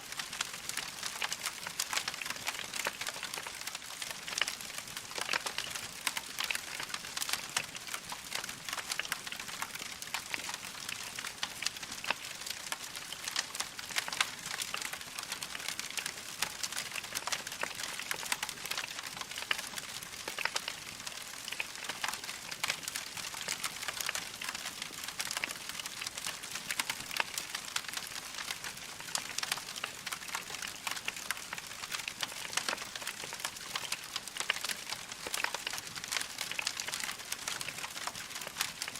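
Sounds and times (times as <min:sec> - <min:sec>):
logs crackling in fireplace: 0:00.0 - 0:38.9.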